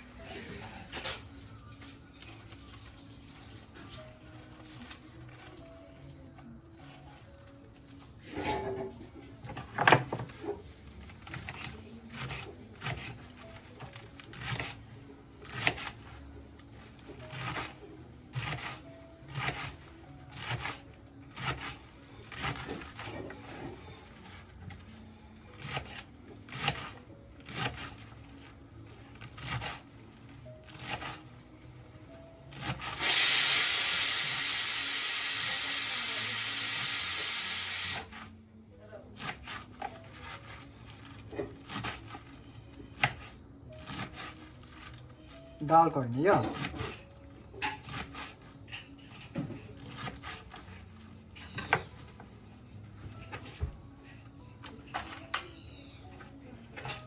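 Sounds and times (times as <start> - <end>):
steam hissing: 33.0 - 38.1.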